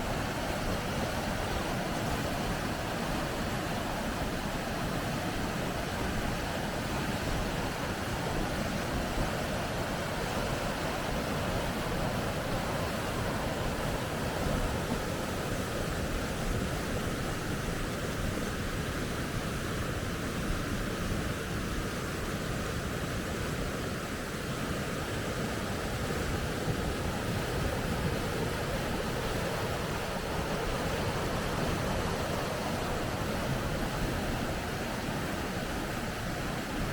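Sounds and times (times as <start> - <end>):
river rapids rushing: 0.0 - 36.9.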